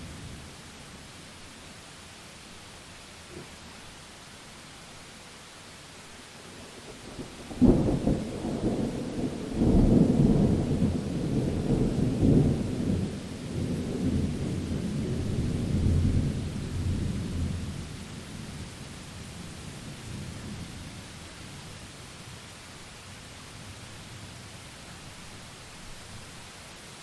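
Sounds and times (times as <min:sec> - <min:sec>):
steady rain: 0:00.0 - 0:27.0
thunder crack and rumble: 0:07.2 - 0:17.8.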